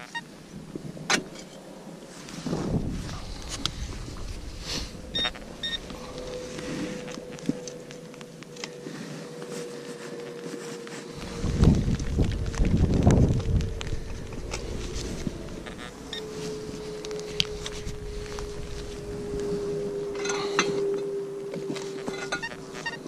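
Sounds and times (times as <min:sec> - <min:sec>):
faint steady tone: 0:00.0 - 0:12.3, 0:13.0 - 0:23.0
wind buffeting microphone: 0:00.0 - 0:23.0
metal detector beeps: 0:05.1 - 0:05.9, 0:20.1 - 0:23.0.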